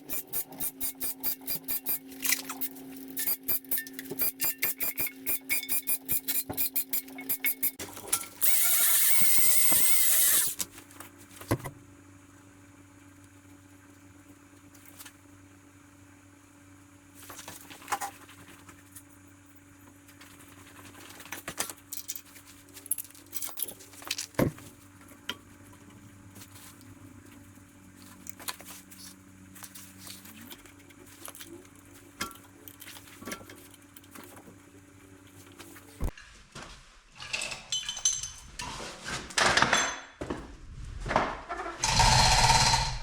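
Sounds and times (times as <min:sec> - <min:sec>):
metallic clicks of tools: 0:00.1 - 0:07.8.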